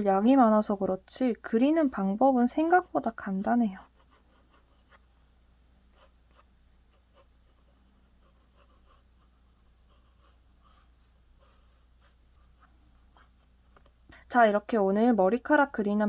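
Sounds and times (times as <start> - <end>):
pencil scratching on paper: 1.6 - 5.0, 5.9 - 13.9.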